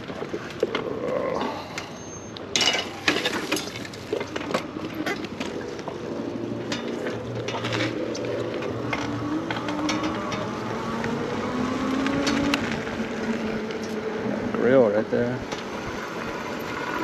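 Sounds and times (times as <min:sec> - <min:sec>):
electric bike rattling: 0:00.0 - 0:17.0.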